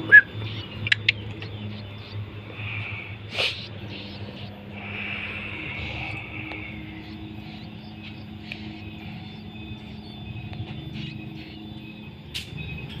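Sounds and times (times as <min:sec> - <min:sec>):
steady low rumble: 0:00.0 - 0:13.0
sharp click: 0:12.3 - 0:12.6.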